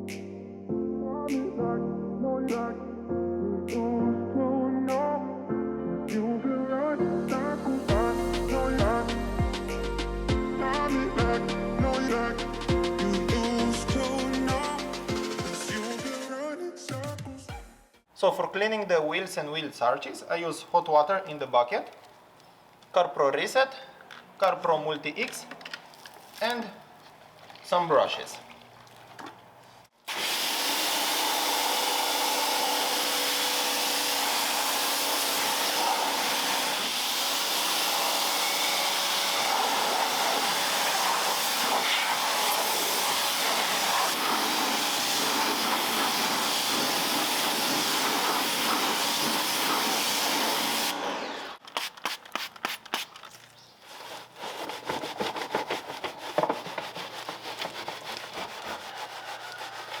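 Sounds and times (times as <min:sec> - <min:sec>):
loud hiss: 0:30.1 - 0:51.0
brush scrubbing a wheel: 0:39.0 - 0:50.8, 0:51.6 - 1:00.0.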